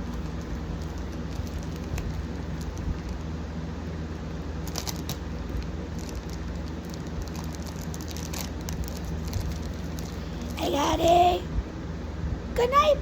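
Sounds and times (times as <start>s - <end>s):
fan and air conditioner hum: 0.0s - 13.0s
packaging crinkling and rustling: 4.7s - 10.6s.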